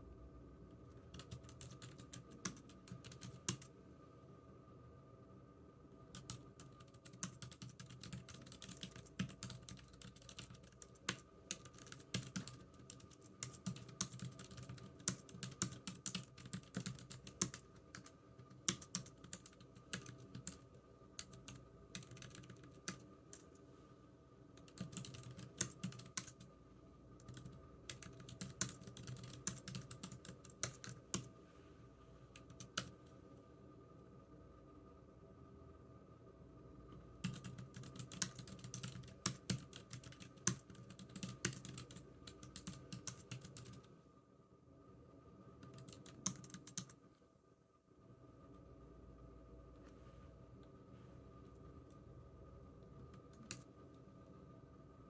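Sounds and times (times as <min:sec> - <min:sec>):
faint steady hum: 0:00.0 - 0:55.0
keyboard typing clicks: 0:24.6 - 0:26.5, 0:45.6 - 0:47.0.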